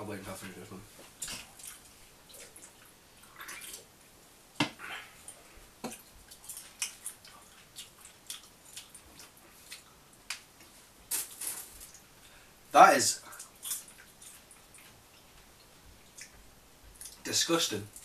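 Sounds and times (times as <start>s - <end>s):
chewing popcorn: 6.0s - 10.0s.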